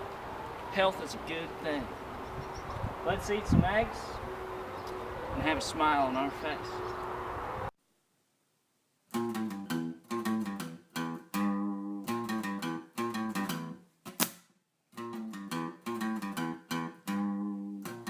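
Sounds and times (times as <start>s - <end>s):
acoustic guitar strumming: 9.2s - 13.8s, 15.0s - 18.0s.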